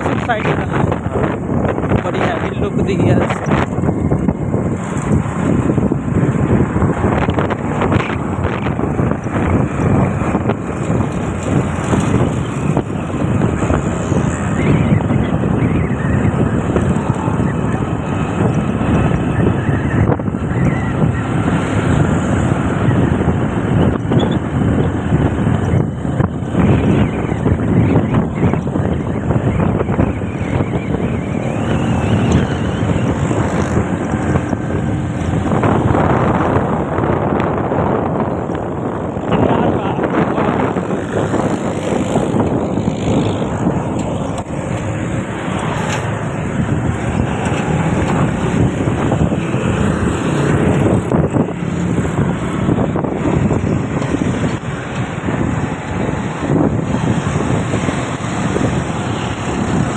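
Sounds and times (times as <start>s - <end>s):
motorbike engine: 0.0s - 59.9s
traffic and road noise: 0.0s - 59.9s
wind on microphone: 0.0s - 59.9s.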